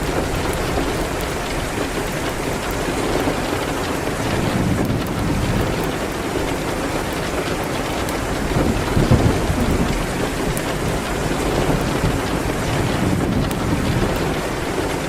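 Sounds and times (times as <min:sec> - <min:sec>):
heavy rain: 0:00.0 - 0:15.0
low rumble of thunder: 0:00.0 - 0:15.0.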